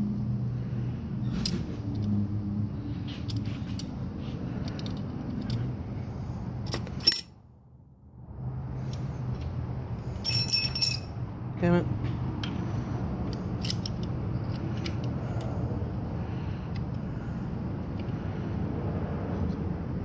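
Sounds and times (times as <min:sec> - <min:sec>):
steady low hum: 0:00.0 - 0:20.0
metal tools clinking: 0:06.6 - 0:07.4, 0:10.1 - 0:11.2
ringing metallic clinks: 0:10.2 - 0:11.2.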